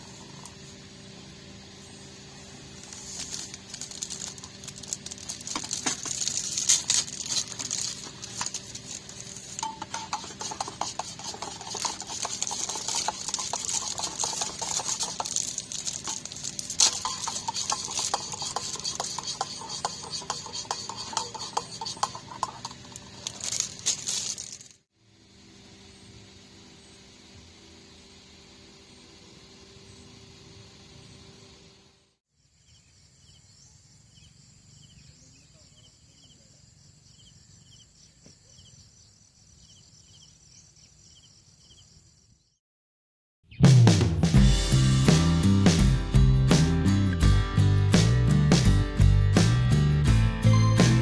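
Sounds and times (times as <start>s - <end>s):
metal utensils clinking on cookware: 9.5s - 24.0s.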